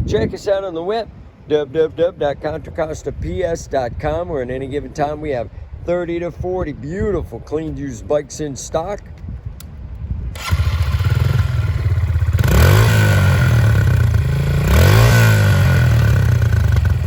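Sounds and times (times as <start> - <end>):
motorcycle engine starting and idling: 10.3 - 17.0.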